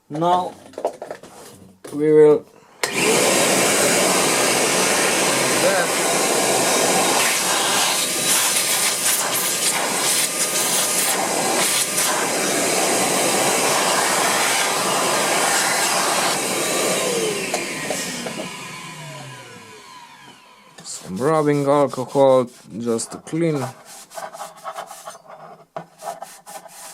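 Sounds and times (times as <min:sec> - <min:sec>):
electric fan motor winding down: 0:02.8 - 0:20.8.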